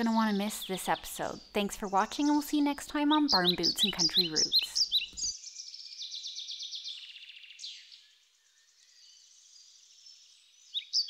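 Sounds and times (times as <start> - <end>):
bird trilling: 0.0 - 5.4
bird chirps: 0.0 - 11.0.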